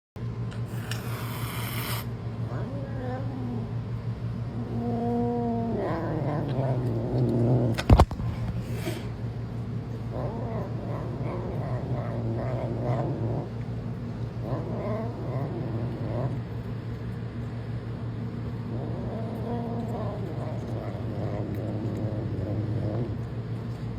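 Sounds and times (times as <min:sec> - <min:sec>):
cat growling and yowling: 0:00.7 - 0:08.0, 0:10.0 - 0:13.6, 0:14.4 - 0:16.6, 0:18.5 - 0:23.3.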